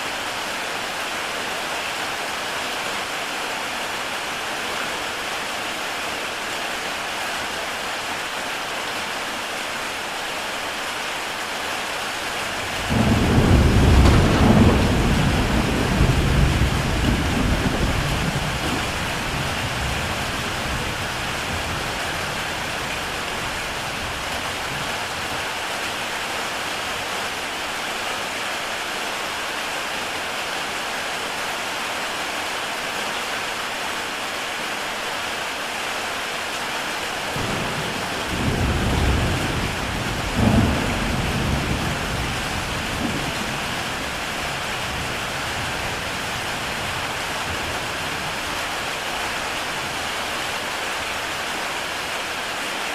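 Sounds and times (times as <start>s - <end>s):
heavy rain on tile roof: 0.0s - 52.9s
thunder rumbling: 12.6s - 25.2s, 37.4s - 48.5s.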